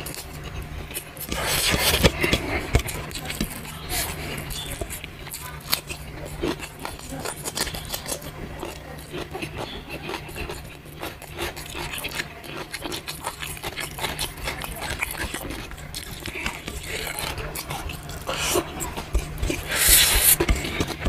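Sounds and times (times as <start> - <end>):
chewing crunchy noodles: 0.0 - 21.0
low steady hum: 0.0 - 21.0
wet mouth clicks: 9.2 - 21.0.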